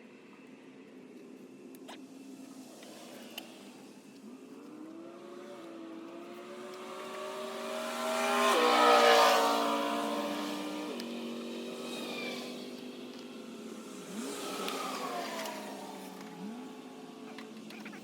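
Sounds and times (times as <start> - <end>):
vehicle engine passing by: 4.8 - 18.0.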